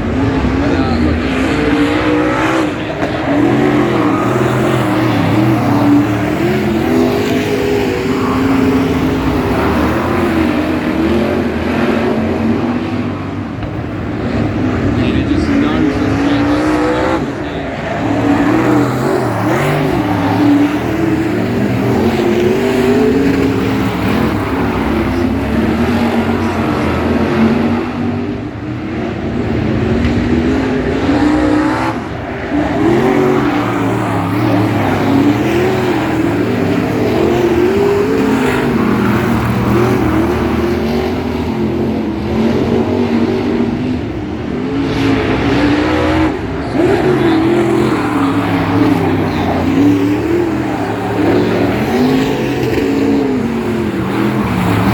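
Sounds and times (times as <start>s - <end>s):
race car engines revving: 0.0s - 54.9s.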